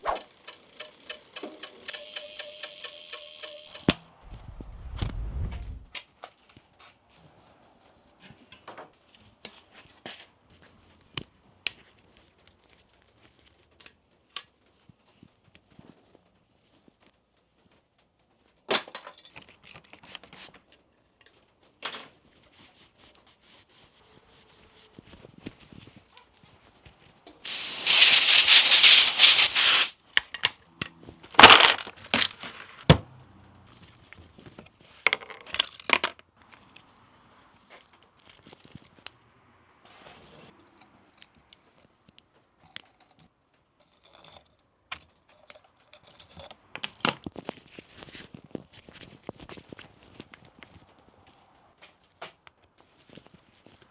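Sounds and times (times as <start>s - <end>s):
tools clicking and knocking: 0.0s - 4.0s
light rustling: 27.5s - 29.9s
loud rasping rush: 27.5s - 29.9s.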